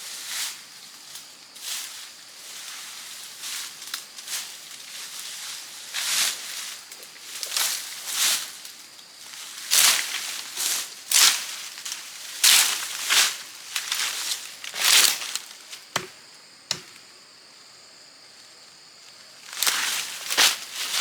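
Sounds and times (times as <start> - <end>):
blade chopping through brush: 16.0 - 17.0
sharp knocks: 16.0 - 17.0.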